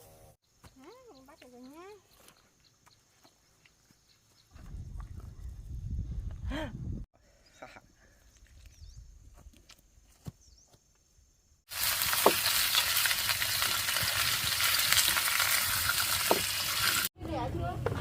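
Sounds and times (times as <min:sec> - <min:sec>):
food sizzling in hot oil: 0:11.7 - 0:17.1.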